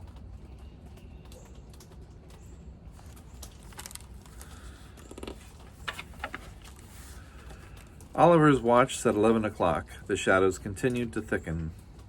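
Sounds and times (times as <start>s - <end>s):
rustling: 2.2s - 9.3s.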